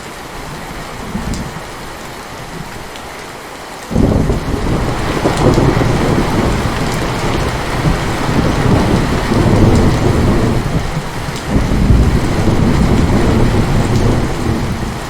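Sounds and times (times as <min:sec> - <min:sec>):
heavy rain: 0:00.0 - 0:15.0
rolling thunder: 0:03.9 - 0:15.0.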